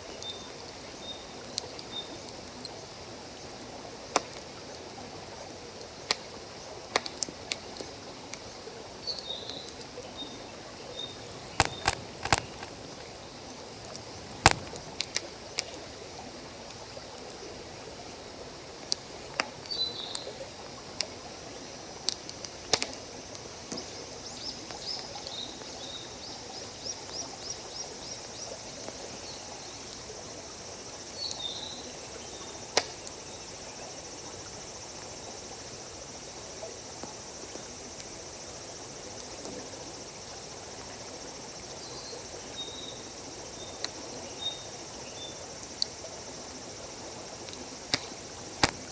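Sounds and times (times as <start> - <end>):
high insect hiss: 0.0 - 48.9
campfire popping: 5.8 - 8.4, 11.1 - 15.8, 22.0 - 23.9, 32.7 - 33.2, 47.4 - 48.9
birds chirping: 9.2 - 12.8.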